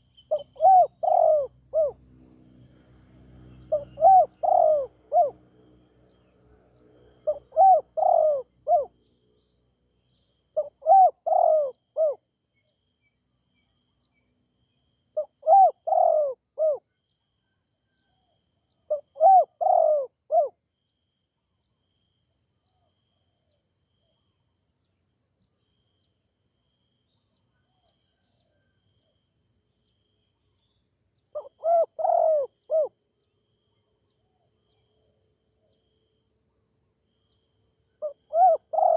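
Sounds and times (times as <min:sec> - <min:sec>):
dove cooing: 0:00.0 - 0:02.0, 0:03.6 - 0:05.4, 0:07.2 - 0:08.9, 0:10.6 - 0:12.2, 0:15.2 - 0:16.8, 0:18.9 - 0:20.5, 0:31.3 - 0:33.0, 0:38.0 - 0:38.9.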